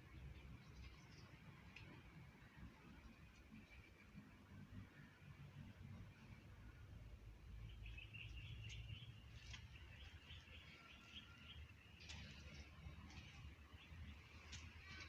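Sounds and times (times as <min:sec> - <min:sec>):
bird chirping: 0:07.5 - 0:12.7.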